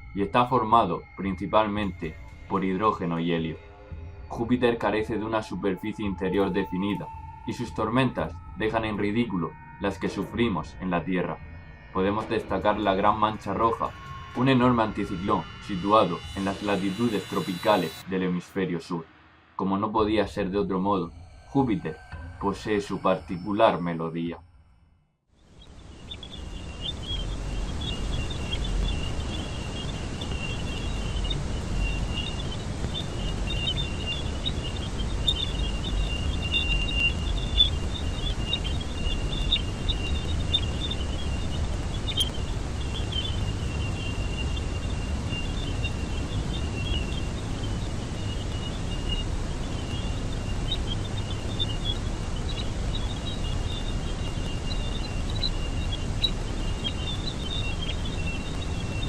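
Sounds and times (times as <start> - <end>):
low rumbling noise: 0.0 - 24.7, 25.4 - 59.0
high fluttering chirps and crackles: 12.0 - 18.7, 25.4 - 59.0.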